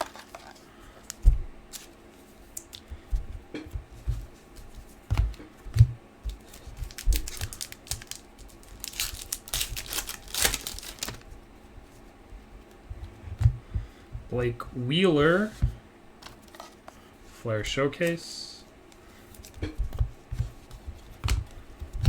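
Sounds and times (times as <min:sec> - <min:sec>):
wrapper crinkling and tearing: 0:00.0 - 0:02.0, 0:06.3 - 0:11.3
cards clicking and tapping: 0:19.4 - 0:22.0.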